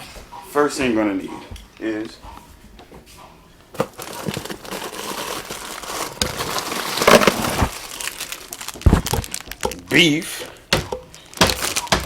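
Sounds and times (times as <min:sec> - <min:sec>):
plastic wrapper crinkling: 0:03.8 - 0:10.0, 0:11.1 - 0:12.0.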